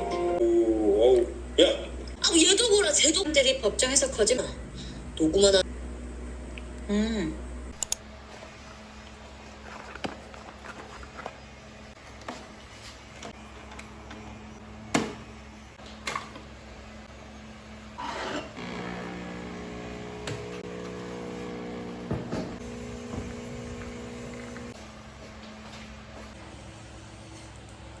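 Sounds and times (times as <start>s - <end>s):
small appliance motor humming: 17.2s - 24.9s.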